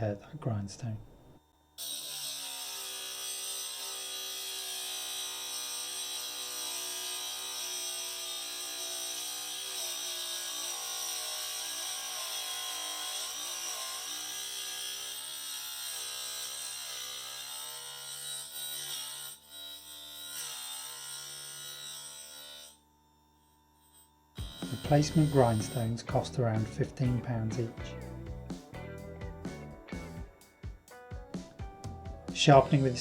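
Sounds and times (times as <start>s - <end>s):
drill bit grinding on grindstone: 1.8s - 22.8s, 23.8s - 26.6s
motor whining: 24.0s - 26.2s.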